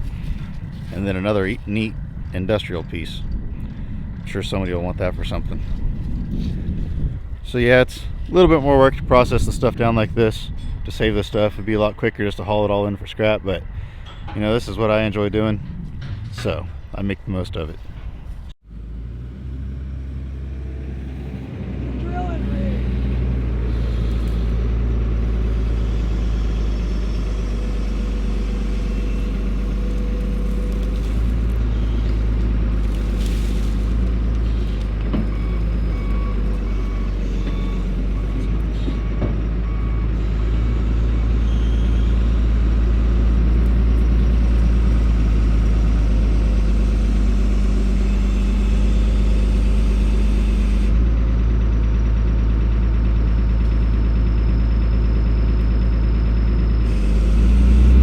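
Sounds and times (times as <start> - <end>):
diesel engine running under load: 0.0 - 58.0
reverse alarm beeping: 35.2 - 42.2.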